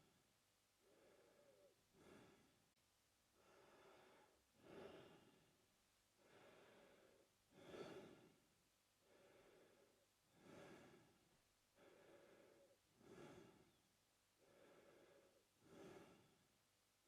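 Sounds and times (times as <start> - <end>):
man breathing through mouth: 6.2 - 8.4, 9.0 - 11.2, 11.8 - 13.8, 14.4 - 16.4.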